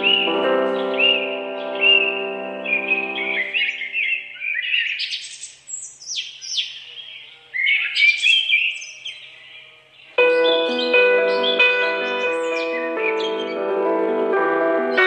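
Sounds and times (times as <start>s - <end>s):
background music: 0.0s - 4.3s, 10.2s - 15.0s
bird chirping and trilling: 0.0s - 13.6s.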